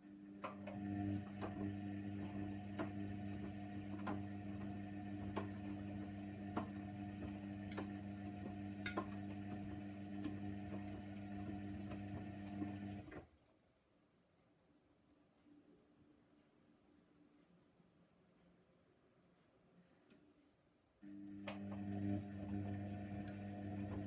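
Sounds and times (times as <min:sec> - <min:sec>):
washing machine humming: 0:00.1 - 0:13.2, 0:21.0 - 0:24.0.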